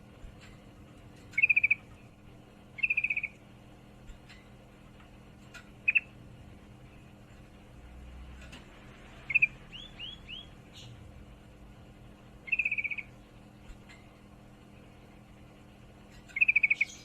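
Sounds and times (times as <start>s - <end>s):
bird chattering trills: 1.3s - 2.0s, 2.7s - 3.4s, 5.5s - 6.2s, 9.2s - 11.0s, 12.4s - 13.2s, 16.2s - 17.0s.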